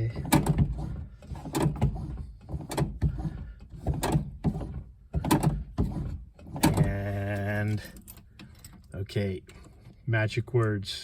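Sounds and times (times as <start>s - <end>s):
mechanical knocks and clunks: 0.0s - 8.9s.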